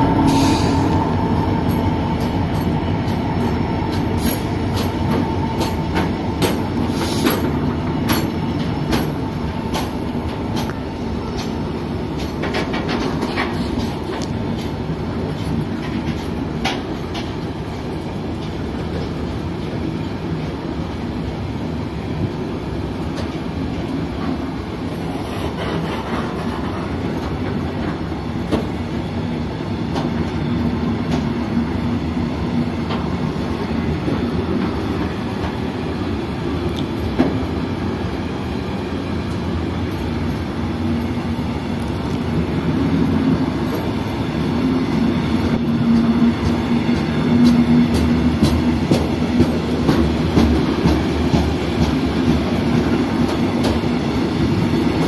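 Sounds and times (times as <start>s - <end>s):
freight train rumbling: 0.0s - 55.0s.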